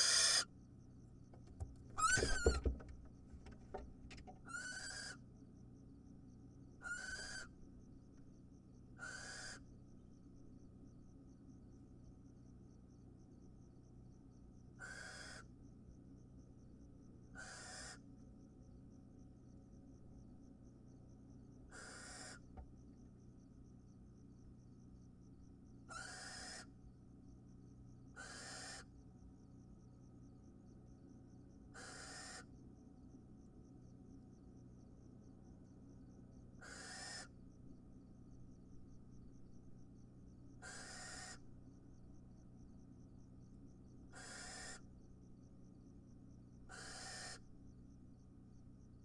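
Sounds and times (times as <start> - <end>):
owls screeching: 0.0 - 0.5, 2.0 - 2.7, 4.5 - 5.2, 6.8 - 7.5, 9.0 - 9.6, 14.8 - 15.4, 17.4 - 18.0, 21.7 - 22.4, 25.9 - 26.7, 28.2 - 28.9, 31.8 - 32.4, 36.6 - 37.3, 40.6 - 41.4, 44.2 - 44.8, 46.7 - 47.4.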